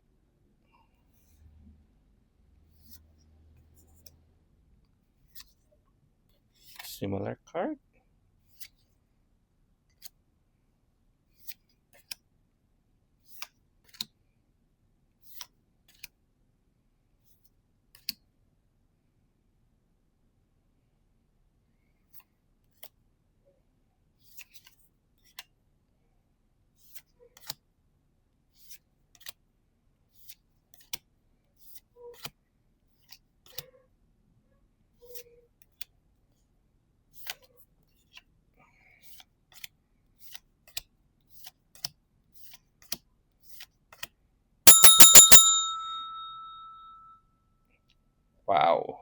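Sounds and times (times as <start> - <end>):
bell trill: 44.7 - 47.0.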